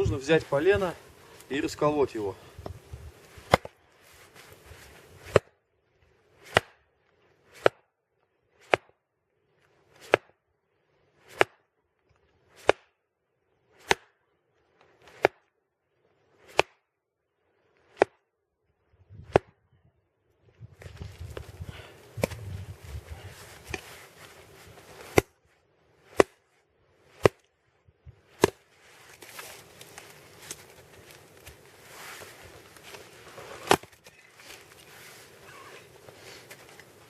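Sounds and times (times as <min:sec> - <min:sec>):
axe chopping log: 0:03.4 - 0:03.8, 0:05.2 - 0:05.6, 0:06.4 - 0:06.8, 0:07.5 - 0:07.9, 0:08.6 - 0:09.0, 0:09.9 - 0:10.4, 0:11.2 - 0:11.6, 0:12.6 - 0:13.0, 0:13.8 - 0:14.2, 0:15.0 - 0:15.5, 0:16.4 - 0:16.9, 0:17.9 - 0:18.2, 0:19.2 - 0:19.5, 0:22.1 - 0:22.5, 0:24.9 - 0:25.4, 0:26.0 - 0:26.4, 0:27.1 - 0:27.5, 0:28.3 - 0:31.6, 0:32.9 - 0:34.1.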